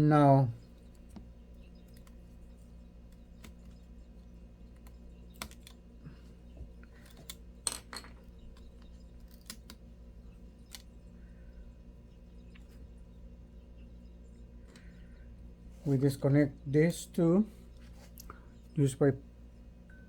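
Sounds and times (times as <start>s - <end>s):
clicks and taps of laptop parts: 4.8s - 5.8s.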